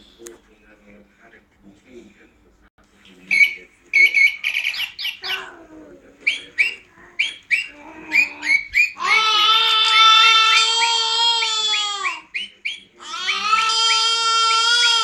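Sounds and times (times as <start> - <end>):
bird chirping: 3.2 - 5.6, 6.2 - 14.2
cat meowing: 7.7 - 12.3, 13.0 - 15.0.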